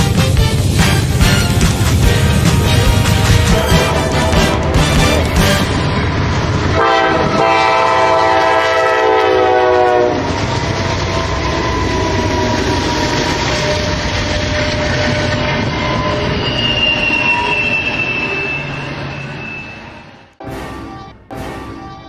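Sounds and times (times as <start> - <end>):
train horn chord: 0.0 - 6.1, 6.7 - 10.3, 20.4 - 22.0
train wheels on rails rumbling: 0.0 - 21.9
faint thin squeal: 15.7 - 20.3.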